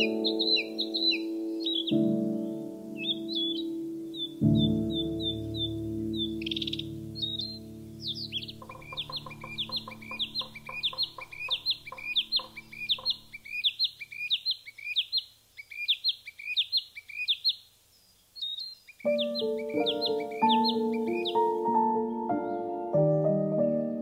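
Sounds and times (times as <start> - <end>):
soft piano music: 0.0 - 13.4, 19.0 - 24.0.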